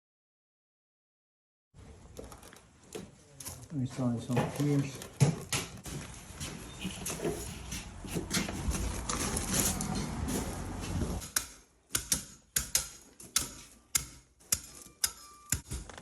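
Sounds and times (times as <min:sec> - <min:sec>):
dense rustling: 0:05.8 - 0:11.2.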